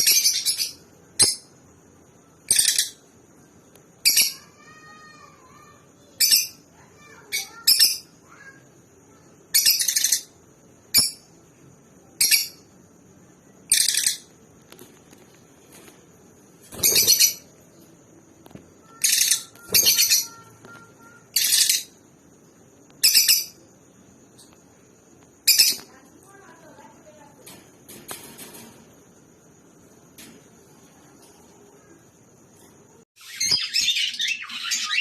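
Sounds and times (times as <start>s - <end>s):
lovebirds chirping: 16.6s - 22.0s, 33.2s - 35.0s.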